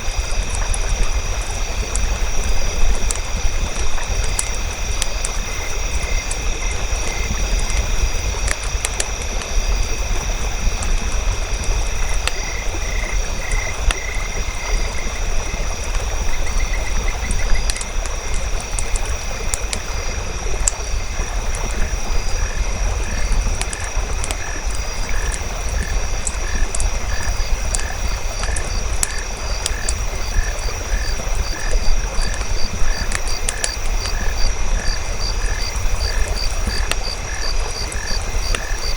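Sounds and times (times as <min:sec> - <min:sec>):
campfire crackling: 0:00.0 - 0:38.9
frogs calling: 0:11.6 - 0:38.9.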